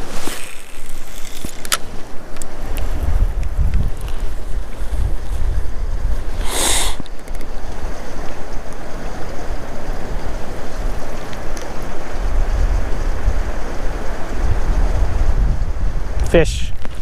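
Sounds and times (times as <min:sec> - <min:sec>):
wind buffeting microphone: 0:00.0 - 0:17.0
short sharp hiss: 0:06.4 - 0:07.1.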